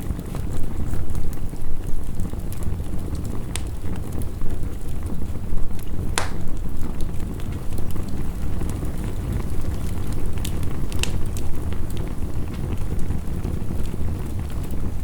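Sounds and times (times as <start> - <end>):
wood fire crackling: 0.0 - 15.0
fire pops: 5.7 - 15.0.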